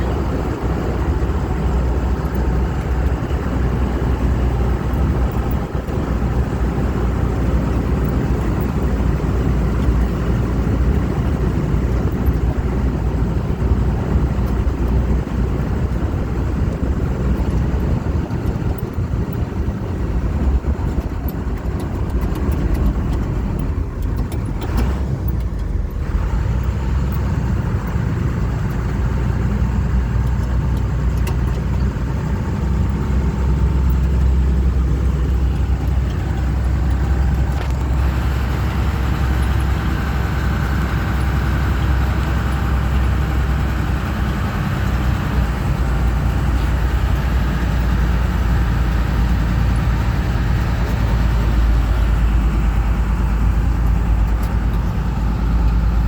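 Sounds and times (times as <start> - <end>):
vehicle engine droning: 0.0 - 56.0.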